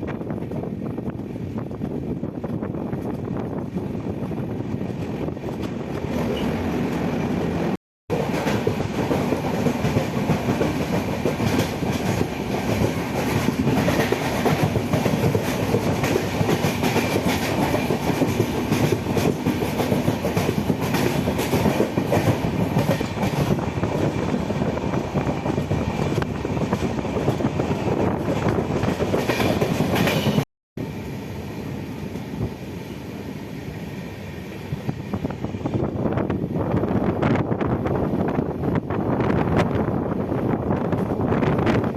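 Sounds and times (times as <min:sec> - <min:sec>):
passenger train rumbling: 0:00.0 - 0:41.9
clickety-clack of wheels: 0:08.1 - 0:24.3, 0:24.9 - 0:30.4.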